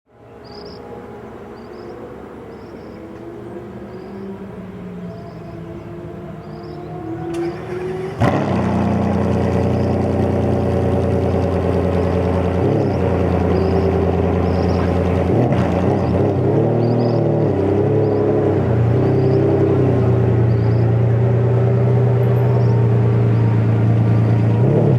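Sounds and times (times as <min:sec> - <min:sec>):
car engine idling: 0:02.5 - 0:24.8
car engine starting with crack: 0:07.3 - 0:16.3.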